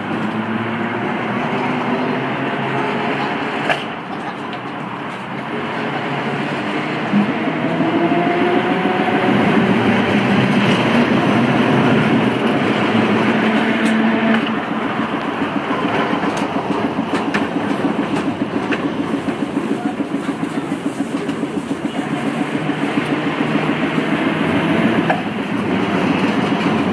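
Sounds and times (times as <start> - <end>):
streetcar rumbling on rails: 0.0 - 26.9
wheels clattering: 9.3 - 26.9.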